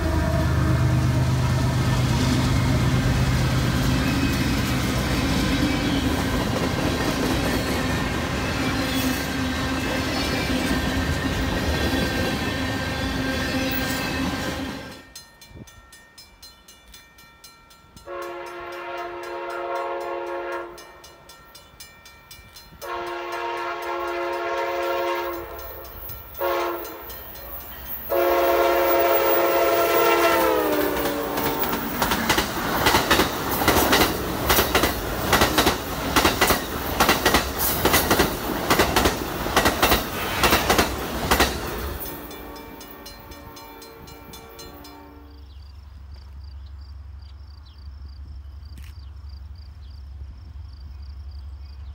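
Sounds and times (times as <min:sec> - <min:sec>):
train horn blasts: 0:00.0 - 0:02.8, 0:18.0 - 0:21.1, 0:22.8 - 0:31.9, 0:42.1 - 0:45.6
train cars rumbling past: 0:00.0 - 0:46.1
wheels clacking over rail joints: 0:30.4 - 0:43.1.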